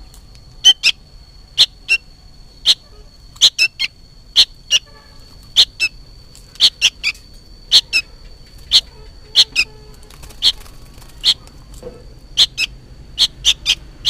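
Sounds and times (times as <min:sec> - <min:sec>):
bird chirping sharply: 0:12.4 - 0:13.8.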